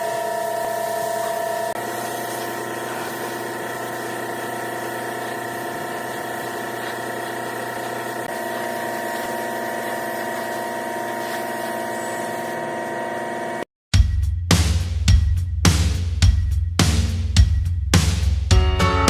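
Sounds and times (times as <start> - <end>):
electric motor humming: 0.0 - 13.6.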